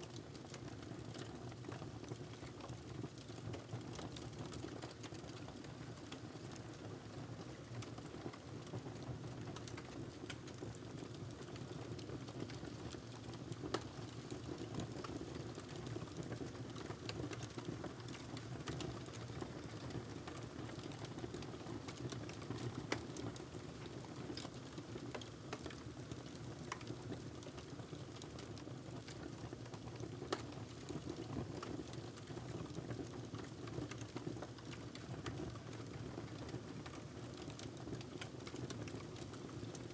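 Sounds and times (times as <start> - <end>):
fire crackling and popping: 9.4 - 39.9.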